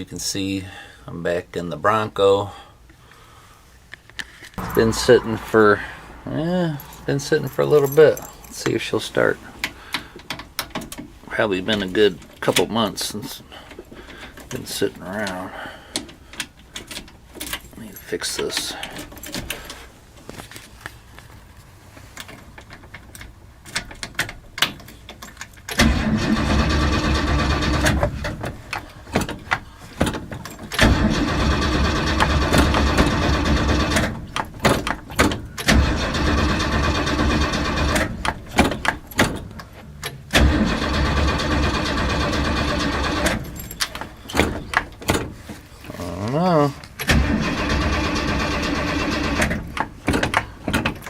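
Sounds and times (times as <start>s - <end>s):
engine cranking by starter: 25.7s - 45.1s, 47.0s - 51.0s.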